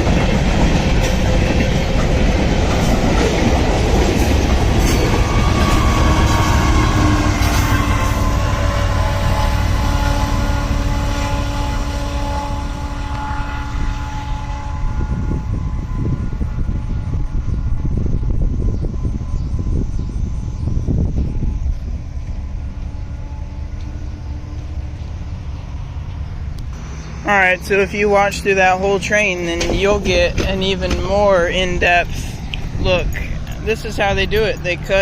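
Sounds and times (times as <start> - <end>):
rail cars clattering over track: 0.0 - 12.0, 22.2 - 35.0
wheels squealing against rails: 0.0 - 35.0.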